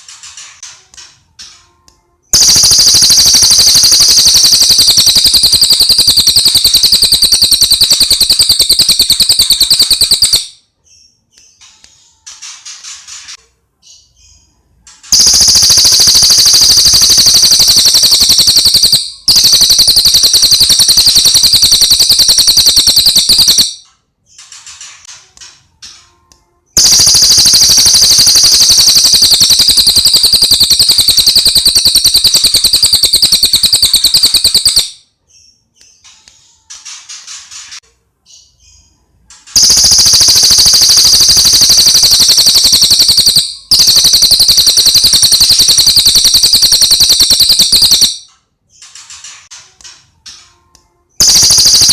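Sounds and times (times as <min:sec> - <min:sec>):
songbird rattling trill: 0:02.4 - 0:10.5, 0:15.1 - 0:23.8, 0:26.8 - 0:35.0, 0:39.6 - 0:48.2.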